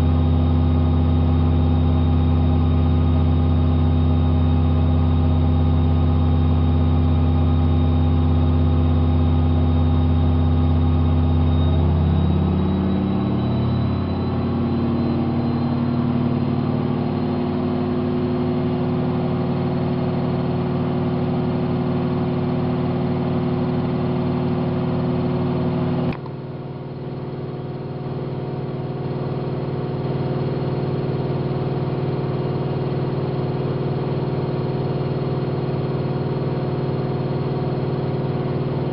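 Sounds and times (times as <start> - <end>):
washing machine spinning: 8.2 - 25.9.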